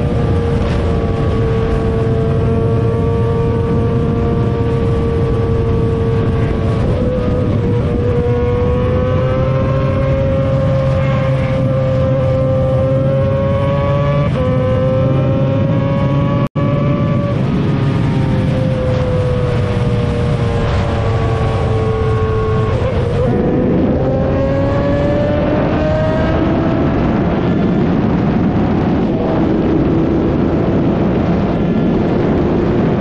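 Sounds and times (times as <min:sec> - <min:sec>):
motorcycle engine at high revs: 0:00.0 - 0:33.0
low rushing noise: 0:14.6 - 0:33.0.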